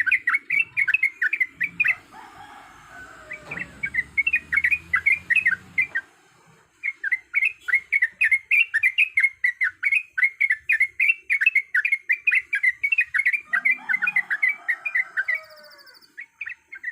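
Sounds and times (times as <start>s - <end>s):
bulbul singing bubbly chatter: 0.0s - 2.2s, 3.3s - 6.1s
low bird call: 0.0s - 6.2s.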